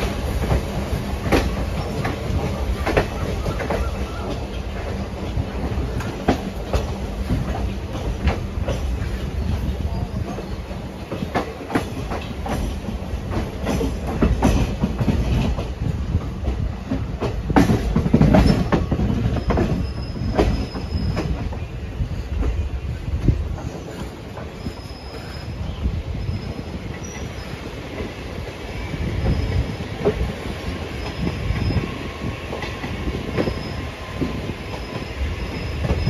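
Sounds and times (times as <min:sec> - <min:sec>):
wheels clattering over rail joints: 0:00.0 - 0:21.7
train rumble: 0:00.0 - 0:36.0
high wheel squeal: 0:19.3 - 0:21.4, 0:24.0 - 0:27.6, 0:34.8 - 0:36.0.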